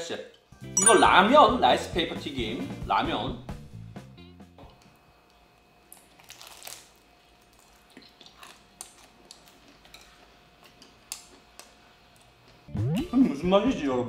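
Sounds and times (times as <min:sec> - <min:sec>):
crisp chewing crunches: 0:05.9 - 0:11.3.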